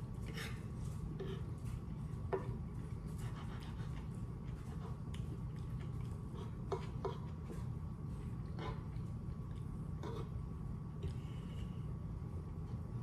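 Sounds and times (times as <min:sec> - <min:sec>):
chewing with mouth clicks: 0:01.4 - 0:10.4.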